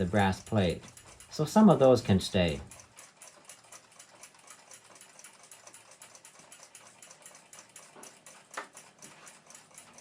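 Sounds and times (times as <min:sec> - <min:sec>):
faint clock ticking: 0:00.0 - 0:10.0.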